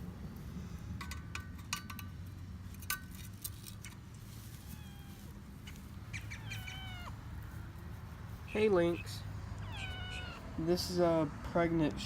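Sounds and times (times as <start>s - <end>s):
metal clinks and taps: 1.0s - 3.2s
faint cat meow: 4.6s - 5.2s, 6.4s - 7.2s, 9.6s - 10.4s.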